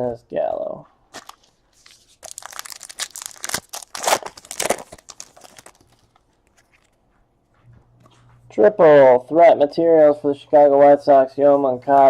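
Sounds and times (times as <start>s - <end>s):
wrapper crinkling and tearing: 1.1s - 7.0s.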